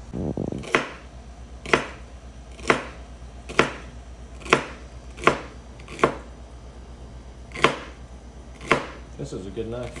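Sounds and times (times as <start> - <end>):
knife chopping on a board: 0.6 - 6.3, 7.5 - 9.1, 9.8 - 10.0.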